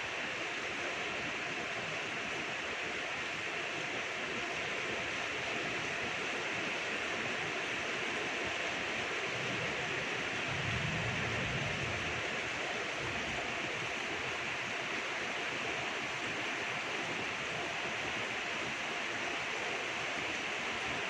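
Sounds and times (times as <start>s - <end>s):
steady rain falling: 0.0s - 21.0s
faint low rumble: 10.4s - 13.4s.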